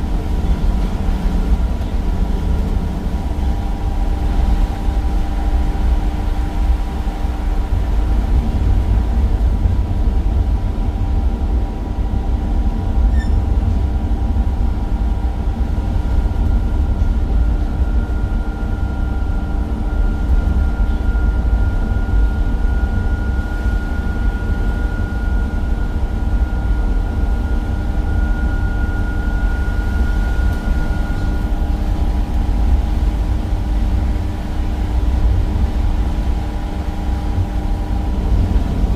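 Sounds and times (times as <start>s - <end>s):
bus engine rumbling: 0.0s - 9.5s, 35.5s - 38.9s
high whine: 0.0s - 38.9s.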